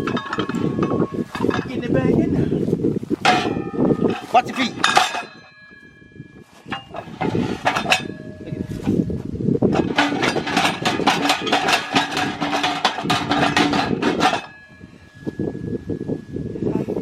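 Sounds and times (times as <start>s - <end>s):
rapid knocks and clanks: 9.7s - 14.6s.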